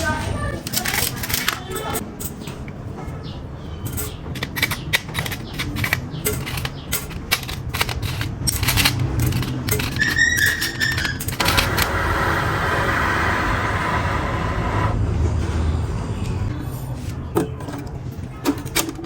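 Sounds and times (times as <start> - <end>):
metal parts and tools clicking: 0.5 - 2.6, 3.8 - 12.0.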